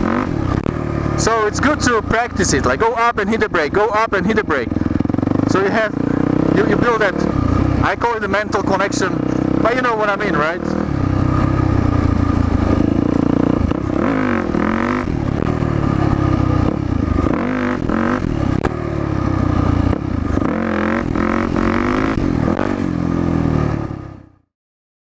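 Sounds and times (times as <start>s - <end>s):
dirt bike engine revving: 0.0s - 24.3s.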